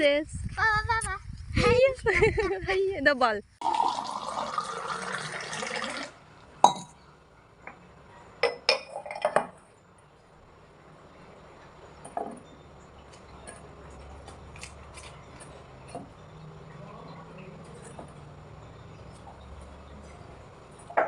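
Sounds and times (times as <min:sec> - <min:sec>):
running water: 0:03.6 - 0:06.2
dishes and glassware clinking: 0:06.6 - 0:07.0, 0:08.4 - 0:09.6.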